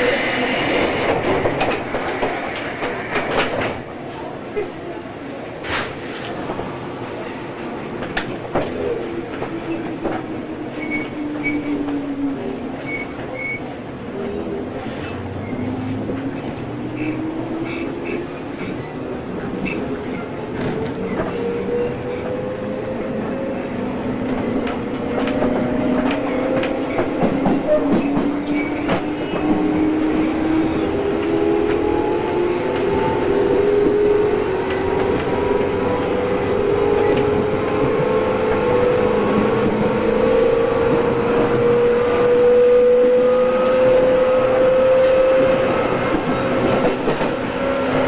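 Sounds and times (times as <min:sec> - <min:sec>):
electric train motor whine: 0:00.0 - 0:03.9
train running noise: 0:00.0 - 0:10.5, 0:12.8 - 0:48.0.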